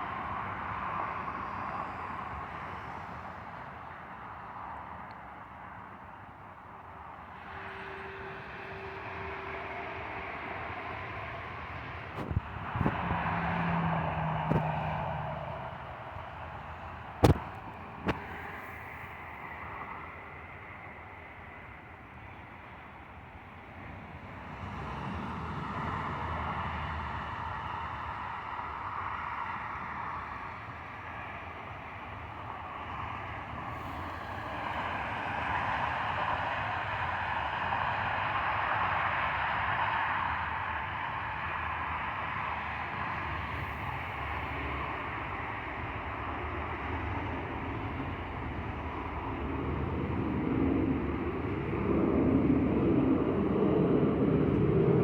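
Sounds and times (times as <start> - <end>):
jet engines roaring: 7.0 - 22.6, 30.2 - 55.0
vehicle passing by: 12.2 - 18.8
sharp knocks: 17.2 - 18.2.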